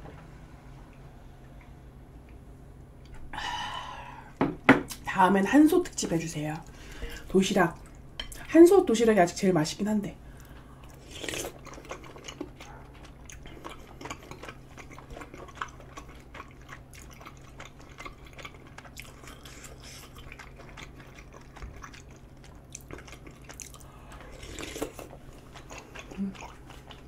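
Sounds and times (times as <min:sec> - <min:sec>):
wet chewing with mouth clicks: 0:10.4 - 0:27.0.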